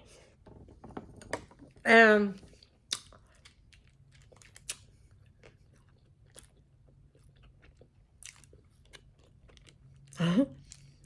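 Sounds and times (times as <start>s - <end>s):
person chewing crunchy food: 2.6s - 11.0s.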